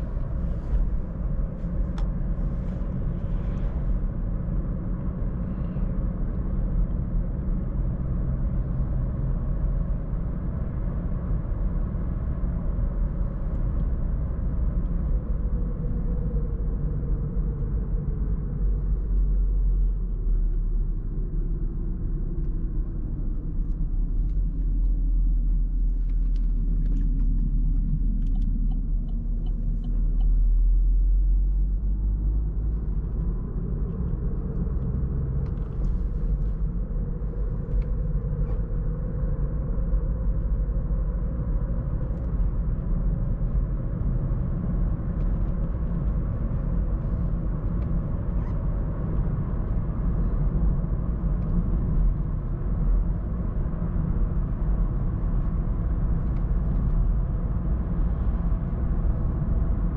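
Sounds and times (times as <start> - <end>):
car engine inside cabin: 0.0 - 59.9
road rumble: 0.0 - 59.9.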